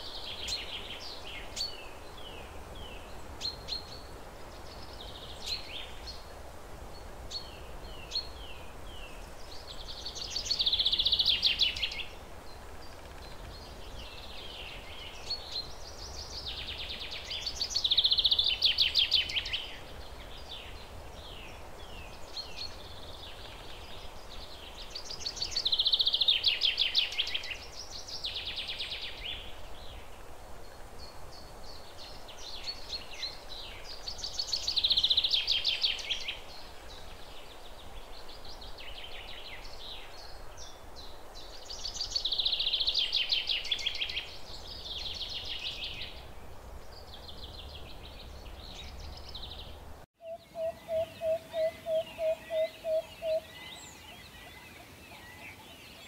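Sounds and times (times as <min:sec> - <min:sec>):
faint steady hiss: 0:00.0 - 0:56.0
songbird trilling: 0:50.2 - 0:56.0.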